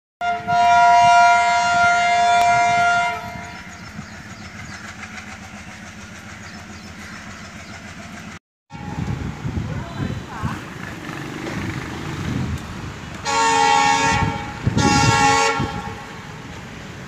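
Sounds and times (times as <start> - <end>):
locomotive horn blast: 0.2 - 3.8, 8.7 - 9.2, 13.2 - 16.4
train coaches rushing rumble: 0.2 - 17.0
wheel clatter: 3.3 - 8.4.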